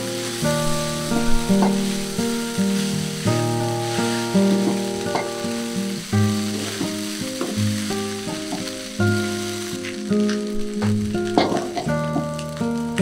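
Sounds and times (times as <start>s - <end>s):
food sizzling in a pan: 0.0s - 13.0s
melodic background music: 0.0s - 13.0s.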